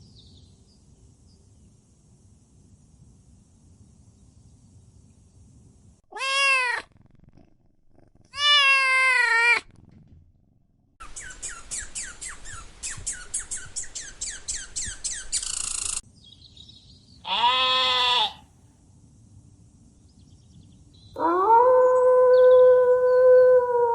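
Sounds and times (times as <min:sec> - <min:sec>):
cat chirping: 0:06.1 - 0:07.1, 0:08.3 - 0:09.6
cat meowing: 0:06.1 - 0:07.1, 0:08.3 - 0:09.7, 0:17.3 - 0:18.4
cat hissing: 0:06.1 - 0:07.4, 0:08.0 - 0:09.7, 0:17.3 - 0:18.4.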